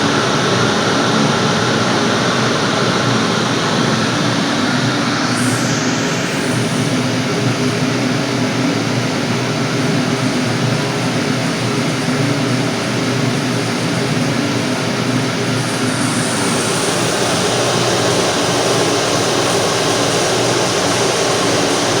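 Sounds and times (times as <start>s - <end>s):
boiler burner rushing: 0.0s - 8.2s, 13.2s - 22.0s.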